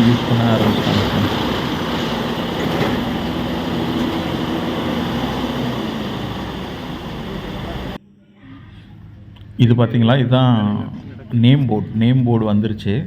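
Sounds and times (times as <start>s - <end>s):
heavy diesel machinery: 0.0s - 8.0s.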